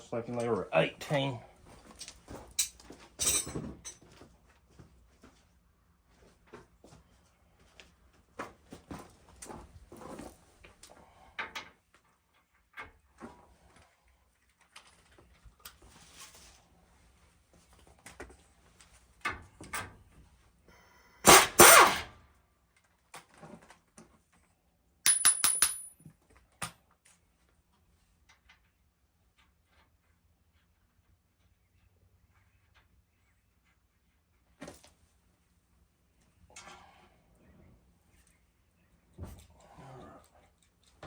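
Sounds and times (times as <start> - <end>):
metal hand tools clinking: 2.6 - 3.9, 25.1 - 25.9.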